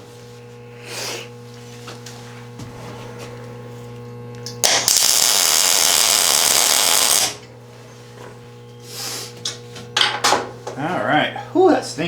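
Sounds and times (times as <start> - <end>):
steady low hum: 0.0 - 12.0
welding arc crackling and buzzing: 3.9 - 7.6.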